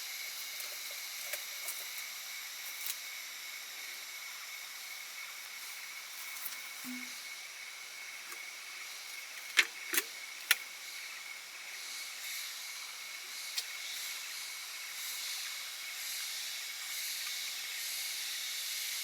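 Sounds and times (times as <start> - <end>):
rain hiss: 0.0 - 19.0.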